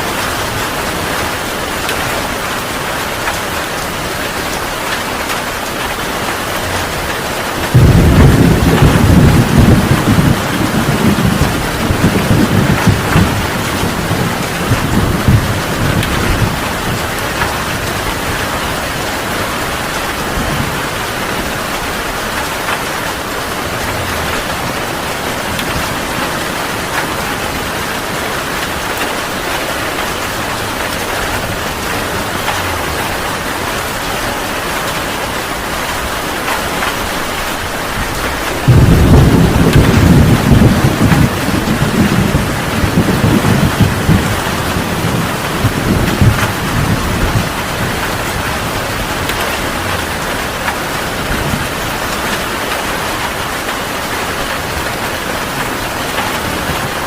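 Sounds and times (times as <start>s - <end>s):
heavy rain: 0.0s - 57.0s
thunder rumbling: 0.0s - 57.0s
loud thunderclap: 7.6s - 34.2s, 35.8s - 52.4s.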